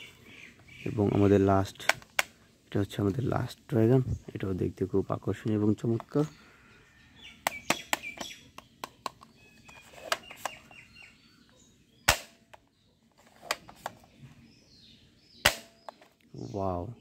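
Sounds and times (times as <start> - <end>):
birds chirping: 0.0 - 17.0
loud toy gun shot: 12.1 - 12.4, 15.4 - 15.9.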